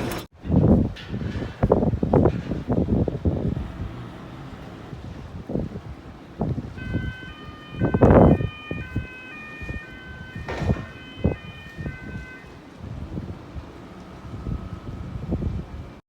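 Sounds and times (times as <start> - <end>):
wind buffeting microphone: 0.0 - 16.0
two-tone siren: 3.6 - 15.6.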